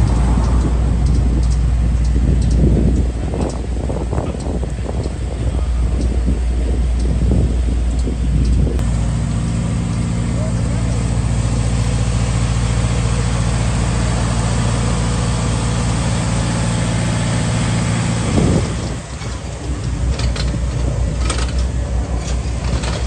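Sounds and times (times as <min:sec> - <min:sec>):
sharp clicks: 0:00.0 - 0:05.2
truck engine idling: 0:00.0 - 0:23.0.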